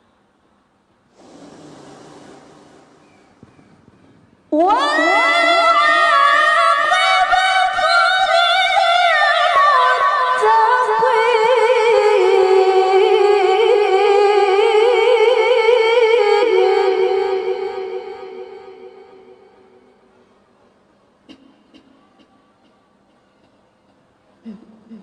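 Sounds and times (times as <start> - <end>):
woman reciting melismatic chant: 4.5 - 19.9.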